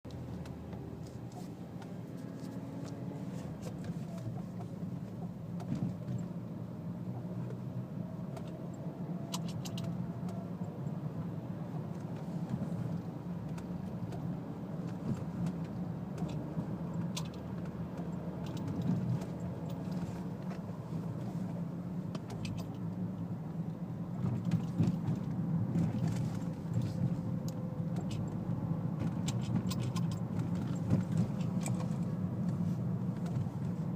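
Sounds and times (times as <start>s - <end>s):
car engine and road noise: 0.0s - 33.9s
rattling clicks and knocks: 24.2s - 33.8s.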